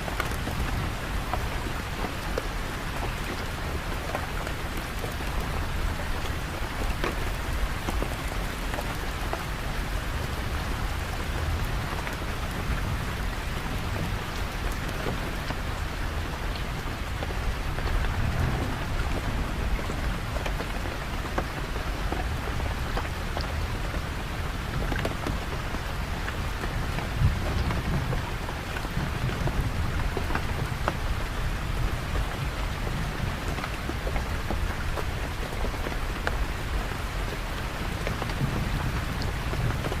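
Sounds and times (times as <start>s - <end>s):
heavy rain: 0.0s - 40.0s
low rumble like distant thunder: 10.1s - 25.8s.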